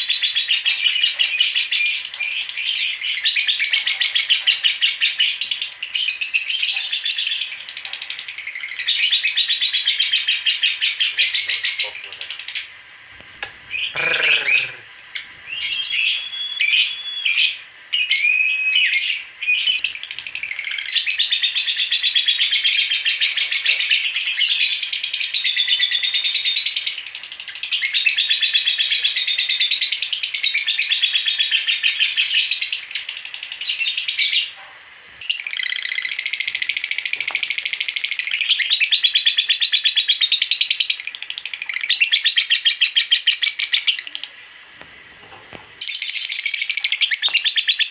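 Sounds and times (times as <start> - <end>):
lovebird chattering song: 13.7 - 17.6, 45.8 - 47.9.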